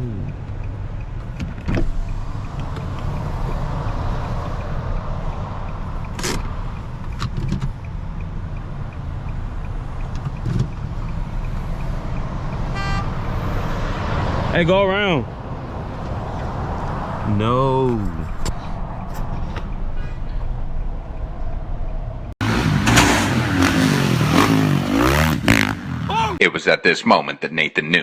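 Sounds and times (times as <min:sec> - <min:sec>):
car engine and road drone: 0:00.0 - 0:26.4.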